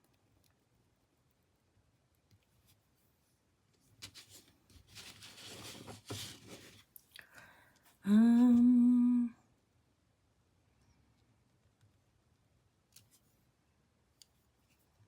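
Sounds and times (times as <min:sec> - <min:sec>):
soft rustling and scraping: 0:02.4 - 0:07.1, 0:14.2 - 0:15.0
person humming: 0:08.0 - 0:09.5.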